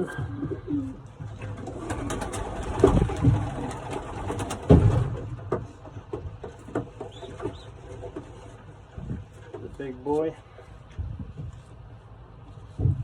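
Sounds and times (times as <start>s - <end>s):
pigeons cooing: 0.0s - 5.1s, 6.6s - 8.7s
clicks and wing flutters: 1.4s - 5.2s.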